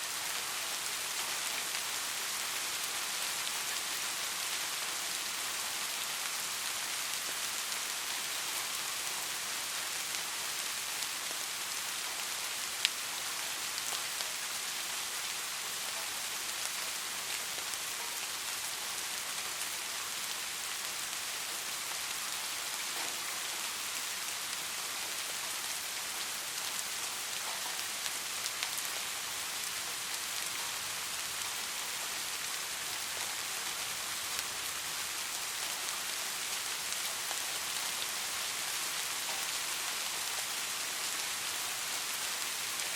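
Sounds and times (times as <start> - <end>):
rain falling on a street: 0.0 - 42.9.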